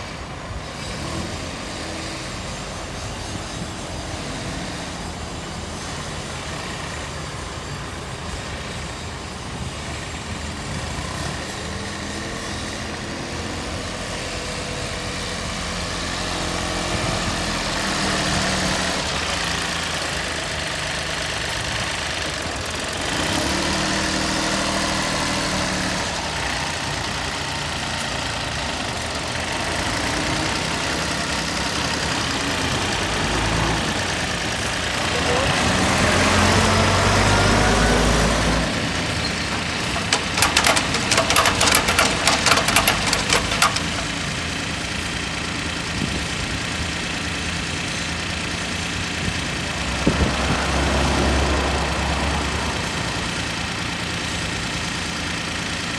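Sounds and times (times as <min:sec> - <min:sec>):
tractor engine running: 0:11.8 - 0:55.9.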